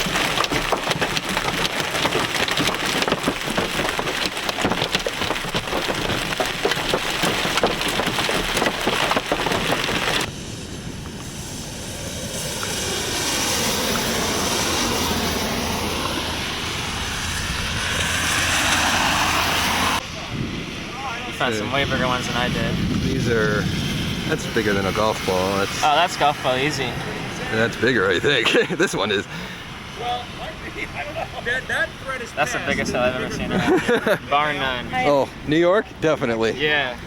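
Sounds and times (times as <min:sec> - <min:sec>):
hail and rain pelting a vehicle: 0:00.0 - 0:10.3
steady rushing noise with hum: 0:10.2 - 0:27.5.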